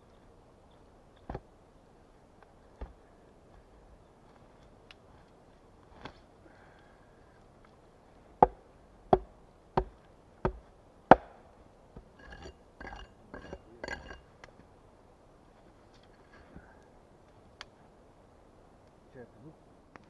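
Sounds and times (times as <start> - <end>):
tool striking wood: 8.4 - 11.4
scraping and rustling: 12.2 - 14.2.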